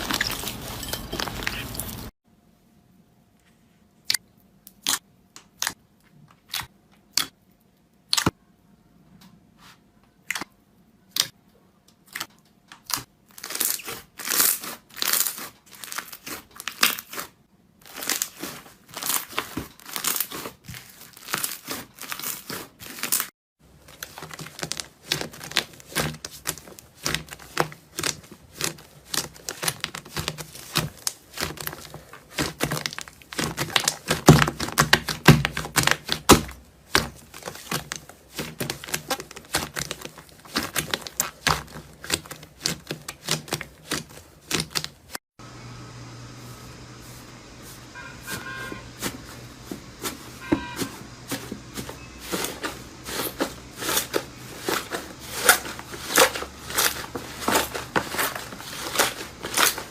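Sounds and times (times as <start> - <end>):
slime popping and crackling: 12.8 - 17.2, 17.9 - 45.2.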